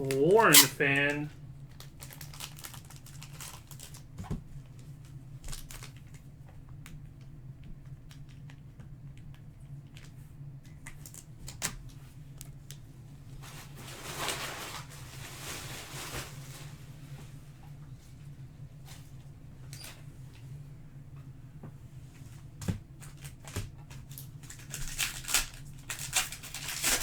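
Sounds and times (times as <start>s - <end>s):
foil wrapper crinkling: 0.1s - 1.2s, 1.8s - 4.1s, 23.2s - 27.0s.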